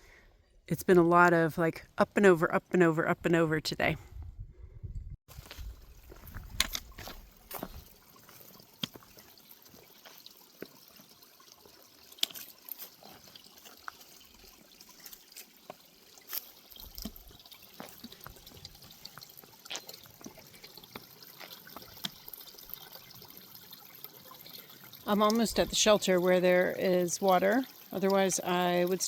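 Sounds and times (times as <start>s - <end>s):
footsteps on rocky trail: 5.3s - 11.2s, 12.1s - 22.4s
stream trickling: 5.3s - 29.0s.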